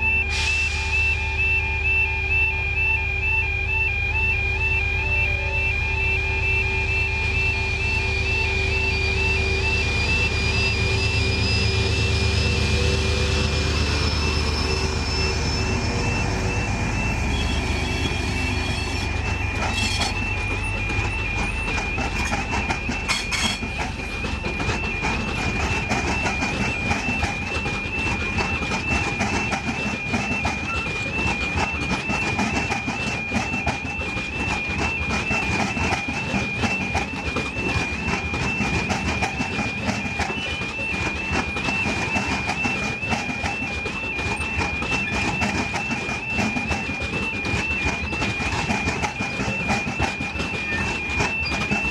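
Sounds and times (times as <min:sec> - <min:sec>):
electronic two-tone alarm: 0:00.0 - 0:51.9
train rumbling past on rails: 0:04.0 - 0:51.9.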